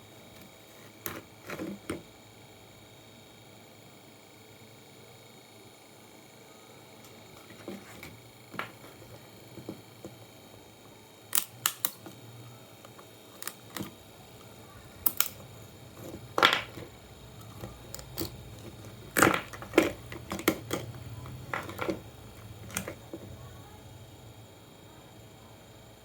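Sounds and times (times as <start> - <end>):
clicks of small parts and tools: 11.3 - 12.2, 12.9 - 13.9, 15.0 - 15.4.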